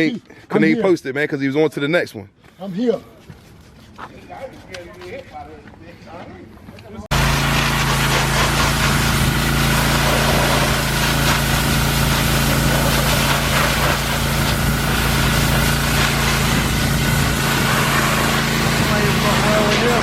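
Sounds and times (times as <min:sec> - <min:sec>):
pressure washer running: 0:07.1 - 0:20.0.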